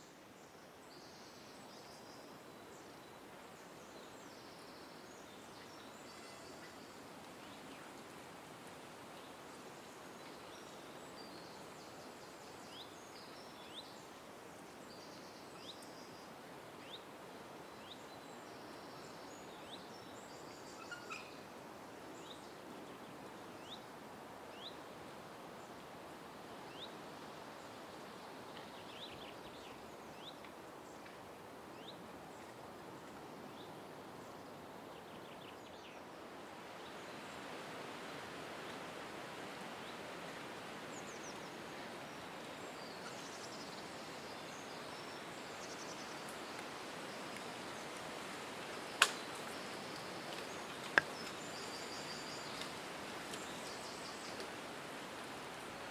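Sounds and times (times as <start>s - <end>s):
small birds calling: 19.4s - 21.5s.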